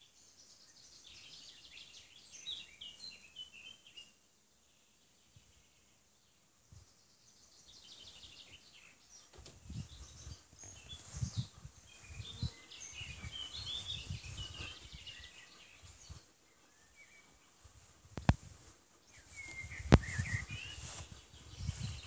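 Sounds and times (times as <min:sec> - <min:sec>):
small birds chirping: 0:00.0 - 0:22.0
low rumble on microphone: 0:09.4 - 0:16.2, 0:17.8 - 0:22.0.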